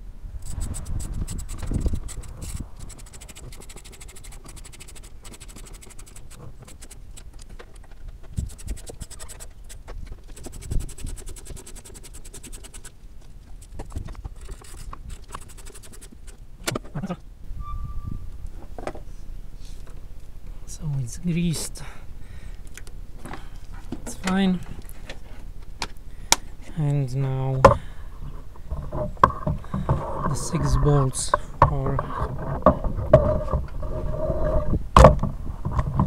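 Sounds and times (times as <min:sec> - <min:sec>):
rapid fine clicking: 0:00.4 - 0:16.4
small parts scraping: 0:00.4 - 0:34.8.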